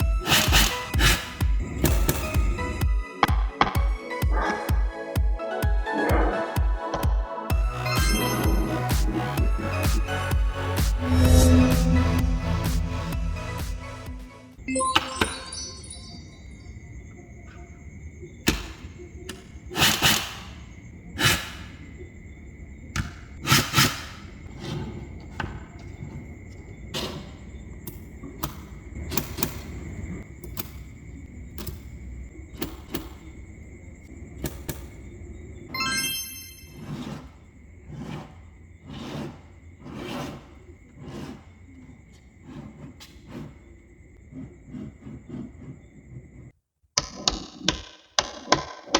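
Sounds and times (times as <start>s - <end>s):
magnetic balls scraping: 0.0s - 4.7s, 6.2s - 14.4s, 23.3s - 34.0s, 34.6s - 48.9s
magnetic balls clicking: 27.9s - 32.0s.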